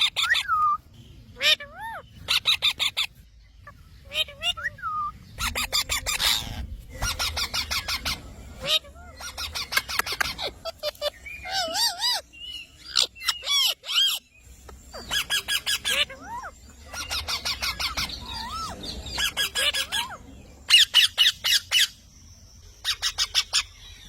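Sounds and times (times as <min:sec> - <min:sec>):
parrots chattering: 0:00.0 - 0:22.0, 0:22.7 - 0:24.0.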